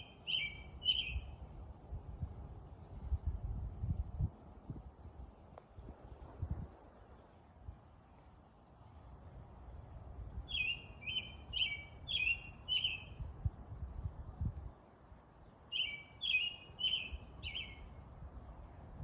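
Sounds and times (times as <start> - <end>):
songbird chirping: 0.0 - 1.6, 6.0 - 9.3, 9.9 - 13.3, 15.3 - 18.3.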